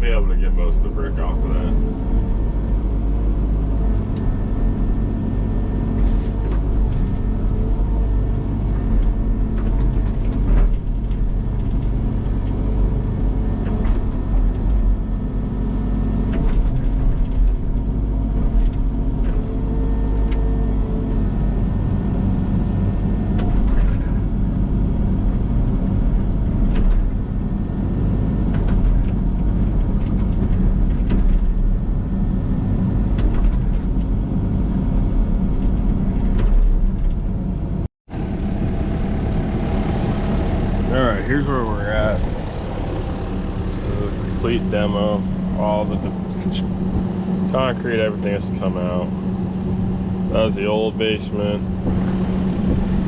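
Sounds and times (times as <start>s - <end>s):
excavator diesel engine running: 0.0s - 53.0s
sharp knocks and clatter: 16.2s - 20.4s, 25.6s - 27.2s, 28.4s - 31.8s, 33.0s - 34.2s, 35.4s - 37.5s.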